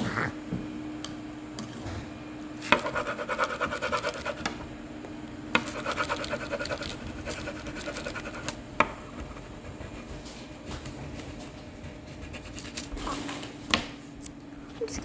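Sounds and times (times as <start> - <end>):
rapid scratching on table: 2.6 - 4.5, 5.6 - 13.4.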